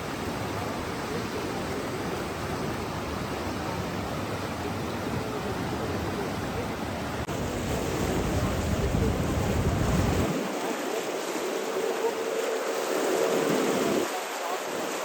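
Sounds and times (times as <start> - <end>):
rushing water: 0.0 - 15.0.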